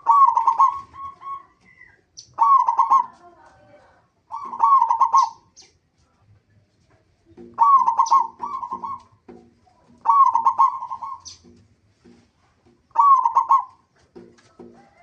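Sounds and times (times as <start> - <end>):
dove cooing song: 0.0 - 3.6, 4.3 - 5.6, 7.4 - 11.6, 12.8 - 15.0.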